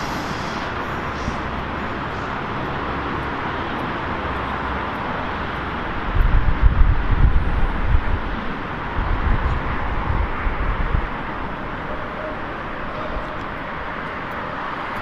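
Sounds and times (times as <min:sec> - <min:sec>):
train rolling past: 0:00.0 - 0:15.0
wind buffeting microphone: 0:00.0 - 0:15.0.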